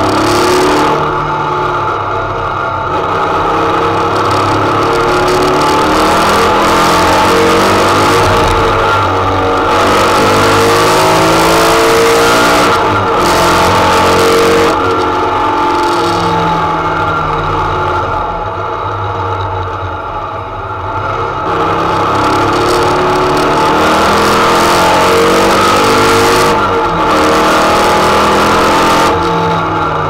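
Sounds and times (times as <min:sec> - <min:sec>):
race car engine revving: 0:00.0 - 0:19.4, 0:20.2 - 0:30.0.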